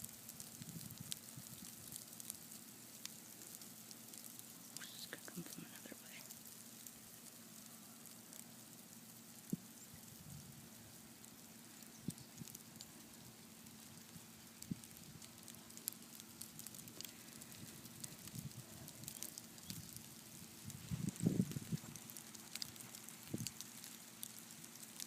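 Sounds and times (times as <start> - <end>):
patter of snow and ice pellets: 0.0 - 25.0
tiny ticks: 13.9 - 20.1, 21.2 - 25.0.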